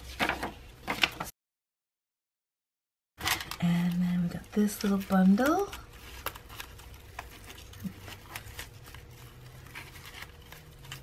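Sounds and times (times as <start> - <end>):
paper and twine rustling: 3.2 - 11.0.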